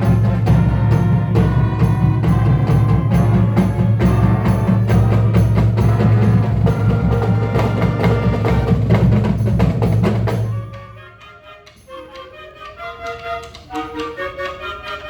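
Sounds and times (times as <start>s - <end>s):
marching band music: 0.0s - 15.0s.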